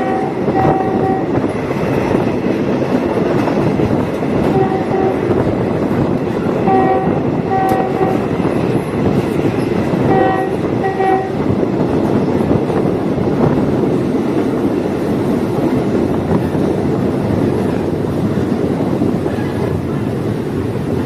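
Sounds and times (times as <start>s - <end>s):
train horn toots: 0.0s - 1.4s, 4.4s - 5.4s, 6.6s - 8.4s, 10.0s - 11.5s
railcar rumbling along track: 0.0s - 21.0s.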